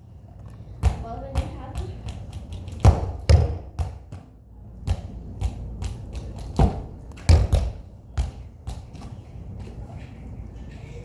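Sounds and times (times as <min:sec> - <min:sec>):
football thudding against a wall: 0:02.8 - 0:09.1.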